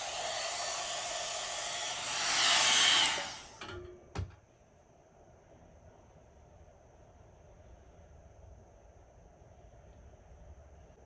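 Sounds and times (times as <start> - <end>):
blow dryer brush whirring: 0.0 - 4.4.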